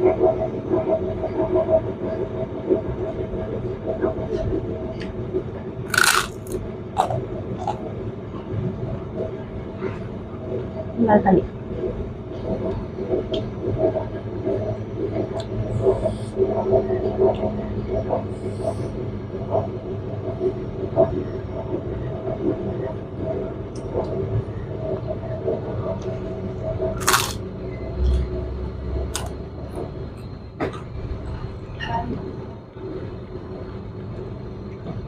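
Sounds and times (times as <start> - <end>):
low mechanical hum: 0.0 - 35.0
person chewing: 5.9 - 7.8, 27.0 - 27.4, 29.1 - 29.3
sharp crunch: 5.9 - 7.8, 27.0 - 27.4.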